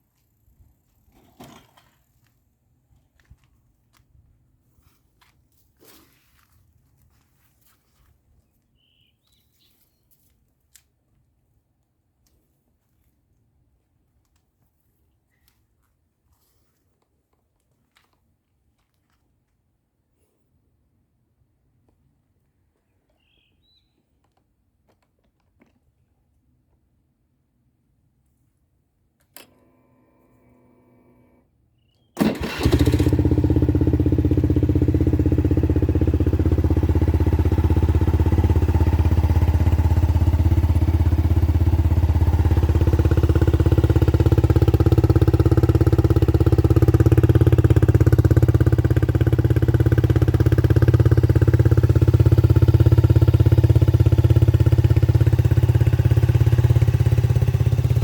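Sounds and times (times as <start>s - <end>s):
scooter engine idling: 32.2s - 58.0s.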